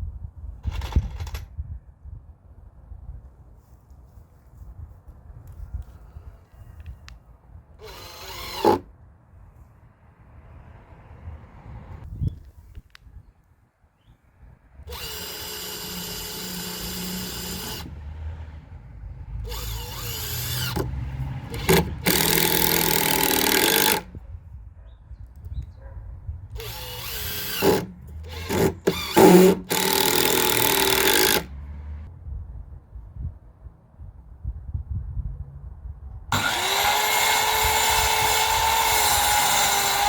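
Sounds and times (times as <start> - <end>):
power drill bursts: 7.8 - 8.8, 14.9 - 18.0, 19.5 - 20.9, 21.5 - 24.1, 26.6 - 31.5, 36.4 - 40.0.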